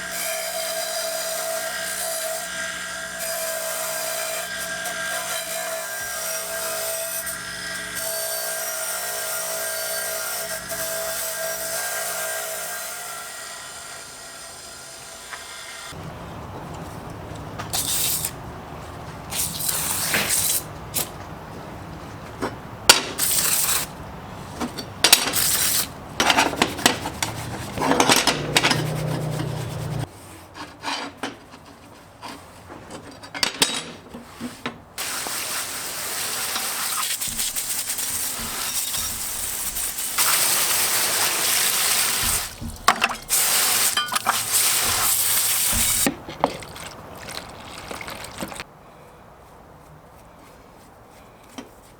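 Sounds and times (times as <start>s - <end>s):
metal clinking and scraping: 24.6s - 30.1s
steady hiss: 35.0s - 42.6s.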